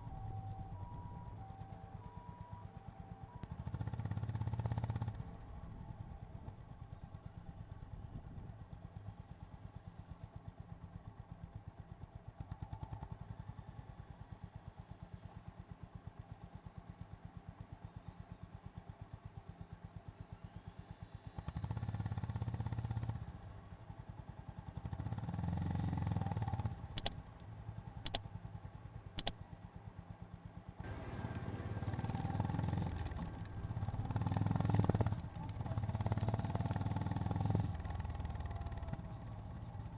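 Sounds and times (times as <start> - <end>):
motorcycle engine: 24.7 - 29.3, 30.8 - 39.9
sharp clicks: 27.0 - 28.3, 29.2 - 29.4.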